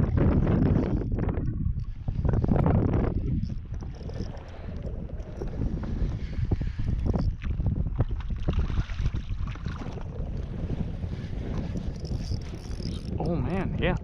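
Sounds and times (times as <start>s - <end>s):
wind rumbling on microphone: 0.0s - 14.0s
water knocks and splashes: 7.4s - 10.2s.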